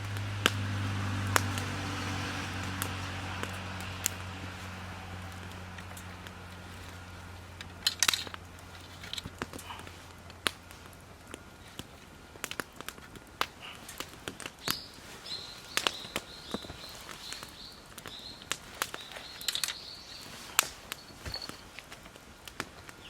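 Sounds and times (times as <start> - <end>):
campfire crackling: 0.0 - 23.0
small bird chirping: 14.6 - 21.7.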